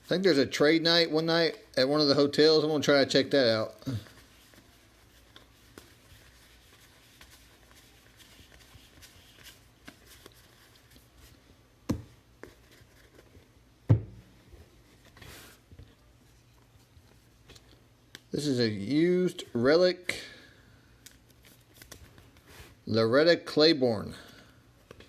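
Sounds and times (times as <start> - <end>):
trading cards rustling and clicking: 21.0 - 22.5.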